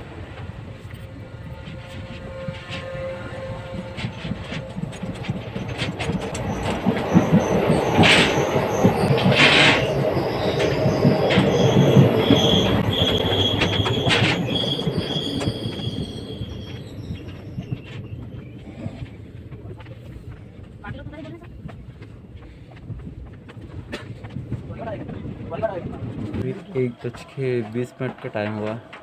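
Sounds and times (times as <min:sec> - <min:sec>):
wheels rumbling on rails: 0:00.0 - 0:29.0.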